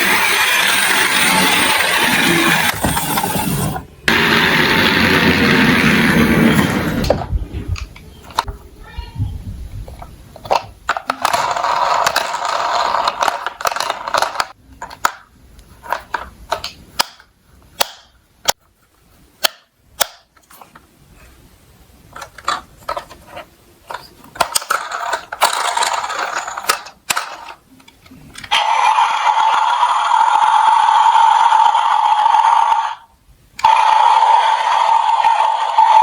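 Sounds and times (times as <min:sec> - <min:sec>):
toy trucks rolling and rattling: 0:00.0 - 0:07.1, 0:10.4 - 0:16.8, 0:22.1 - 0:36.0
toy trucks clicking and knocking: 0:09.9 - 0:18.7, 0:22.1 - 0:33.0, 0:33.6 - 0:36.0.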